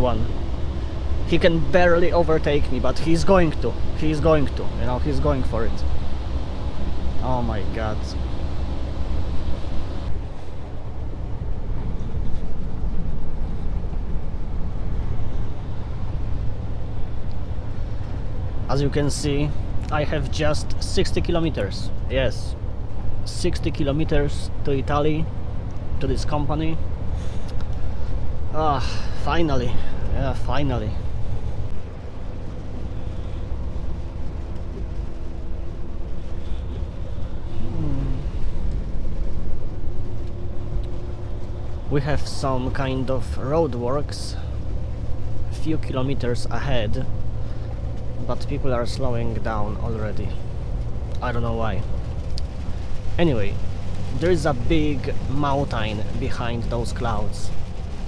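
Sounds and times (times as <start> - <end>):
road and tyre noise: 0.0 - 58.0
truck engine drone: 0.0 - 58.0.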